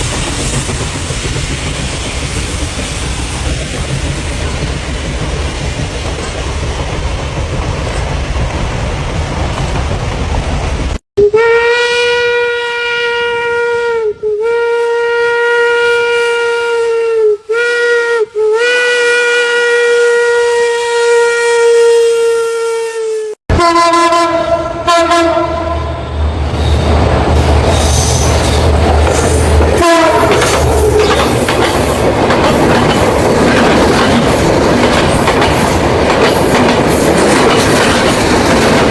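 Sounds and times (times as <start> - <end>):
train wheels clattering on rails: 0.0 - 11.0, 26.3 - 38.9
train rumbling: 0.0 - 20.6, 23.4 - 38.9
train whistle blasts: 11.2 - 26.1, 29.8 - 31.2.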